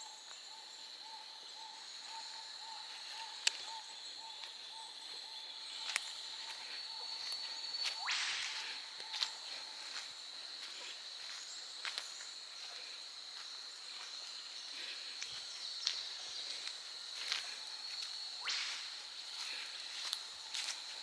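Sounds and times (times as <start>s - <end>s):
insects droning: 0.0s - 21.0s
footsteps on trail: 5.7s - 21.0s
whip-crack bird call: 8.0s - 8.8s, 18.4s - 19.0s.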